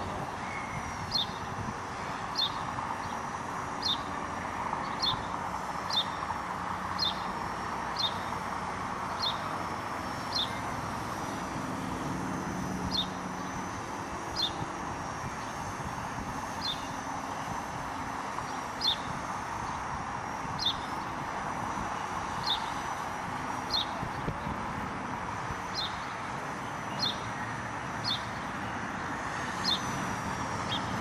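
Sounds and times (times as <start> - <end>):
wind noise: 0.0 - 5.4, 11.0 - 26.2
bird chirping: 0.4 - 1.5, 5.9 - 6.2, 7.0 - 7.3, 7.9 - 8.3, 9.2 - 9.4, 10.3 - 10.6, 14.4 - 14.6, 18.5 - 19.8, 25.7 - 28.8.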